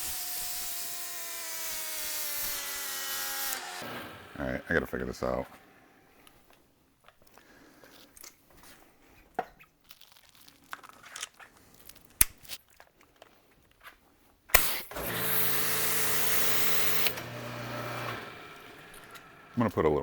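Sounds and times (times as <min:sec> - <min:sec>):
sharp click: 0:14.5 - 0:14.9
pressure washer spraying: 0:14.6 - 0:19.2
washer motor humming: 0:14.9 - 0:19.7.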